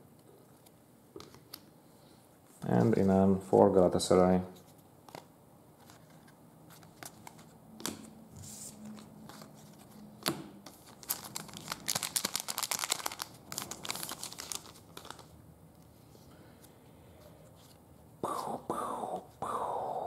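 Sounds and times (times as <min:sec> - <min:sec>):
card pack wrapper crinkling: 0:10.7 - 0:15.3.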